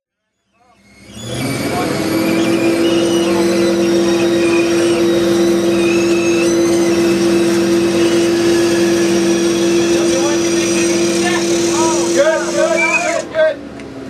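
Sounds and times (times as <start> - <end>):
vehicle engine humming: 0.4 - 14.0.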